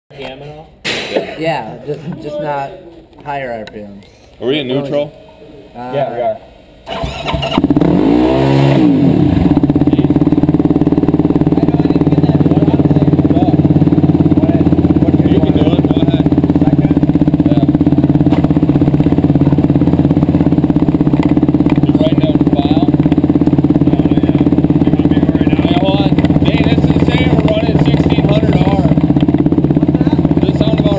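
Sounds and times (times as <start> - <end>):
motorbike engine idling: 8.9 - 30.9.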